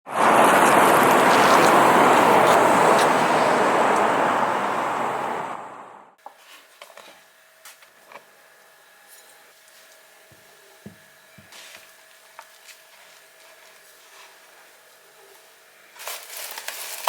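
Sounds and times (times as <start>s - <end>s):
loud rushing noise: 0.0s - 6.1s.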